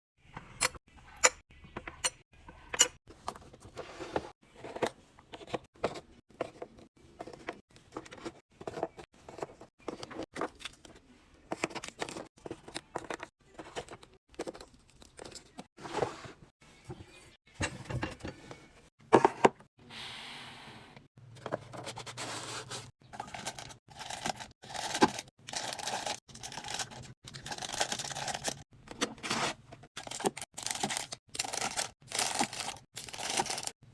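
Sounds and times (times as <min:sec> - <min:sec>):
packaging rustling and scraping: 0:21.3 - 0:33.8
wrappers crinkling: 0:23.2 - 0:28.6, 0:30.0 - 0:33.8.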